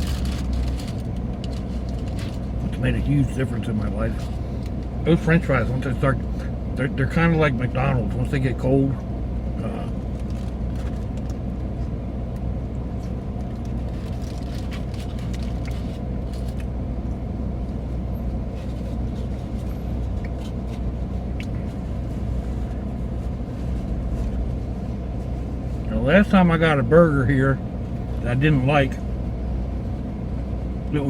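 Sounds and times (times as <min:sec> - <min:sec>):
faint clicks and rustles: 0:00.0 - 0:02.7, 0:09.9 - 0:16.7
car engine idling: 0:00.0 - 0:31.0.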